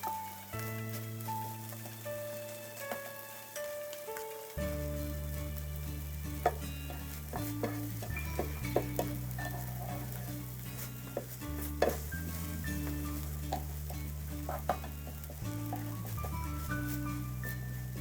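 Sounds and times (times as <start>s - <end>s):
batter sizzling on hot plate: 0.0s - 18.0s
background music with bass: 4.6s - 18.0s.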